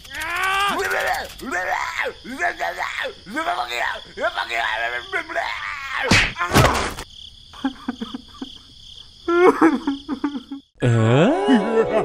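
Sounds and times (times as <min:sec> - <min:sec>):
squeaky gibberish voices: 0:00.0 - 0:06.1.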